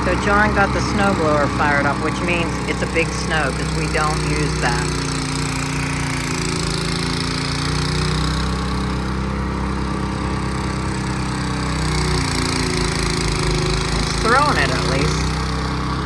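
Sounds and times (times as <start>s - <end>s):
snow blower churning snow: 0.0s - 16.0s
snow blower engine running: 0.0s - 16.0s.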